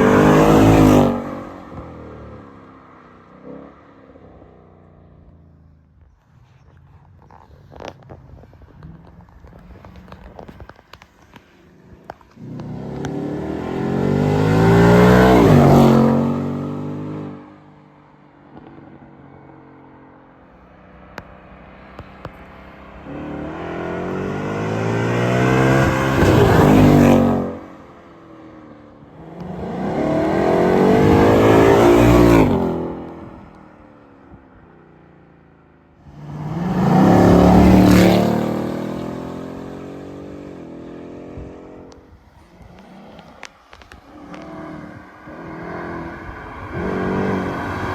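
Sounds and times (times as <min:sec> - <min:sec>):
car engine accelerating past: 0:00.0 - 0:05.4, 0:12.1 - 0:17.7, 0:21.1 - 0:34.0, 0:36.0 - 0:47.9.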